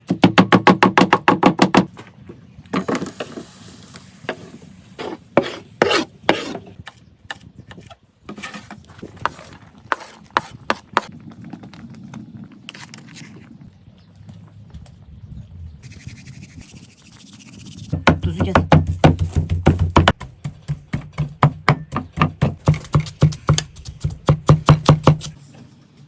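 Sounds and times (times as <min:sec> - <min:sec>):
scrapes and rubbing: 0:02.8 - 0:06.8, 0:07.8 - 0:13.6, 0:15.8 - 0:18.0, 0:22.4 - 0:26.0
knocks on wood: 0:18.0 - 0:25.3.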